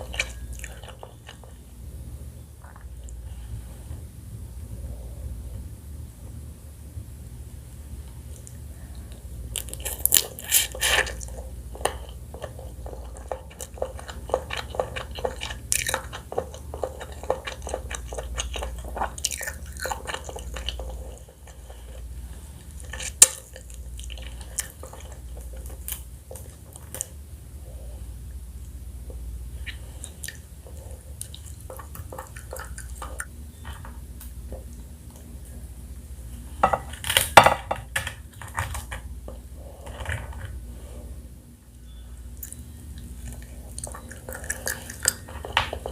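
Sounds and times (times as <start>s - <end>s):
eating crab crunching: 0.0s - 1.8s, 8.4s - 27.2s, 28.6s - 33.4s, 42.3s - 45.9s.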